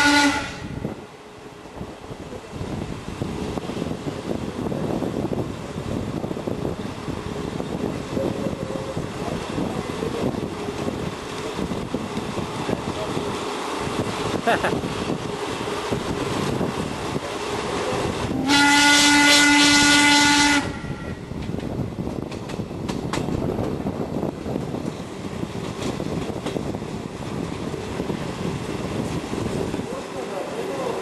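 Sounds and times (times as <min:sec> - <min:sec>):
steam locomotive whistle: 0:00.0 - 0:00.9, 0:18.3 - 0:21.2
train rumbling and clattering: 0:00.0 - 0:31.0.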